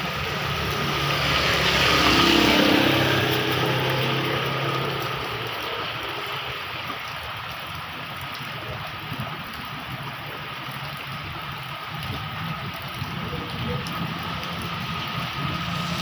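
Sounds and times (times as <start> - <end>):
vehicle engine: 0.0 - 6.6, 13.2 - 16.0
heavy rain falling: 0.0 - 16.0.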